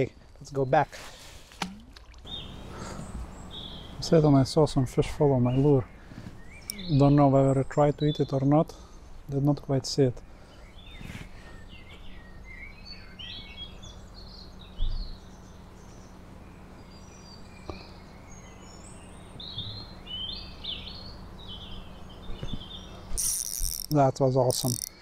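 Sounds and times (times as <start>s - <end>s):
outdoor background noise: 0.0s - 25.0s
songbirds singing: 2.2s - 25.0s.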